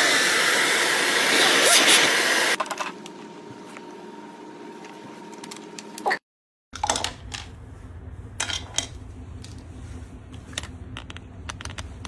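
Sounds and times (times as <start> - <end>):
vacuum cleaner motor: 0.0 - 2.6.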